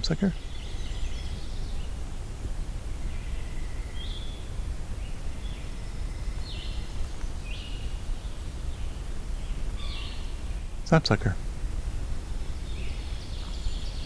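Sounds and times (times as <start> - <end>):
low outdoor rumble: 0.0 - 14.0
bird calling: 5.1 - 11.4.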